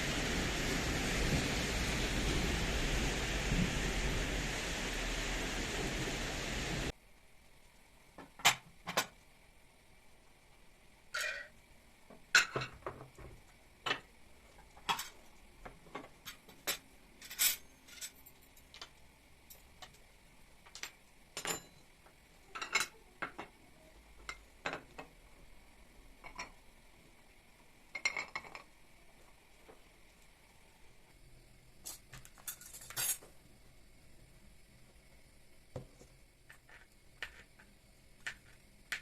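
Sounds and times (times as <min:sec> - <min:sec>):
dishes and cutlery clinking: 0:11.2 - 0:11.5, 0:20.8 - 0:21.8, 0:22.5 - 0:23.5, 0:31.9 - 0:33.3.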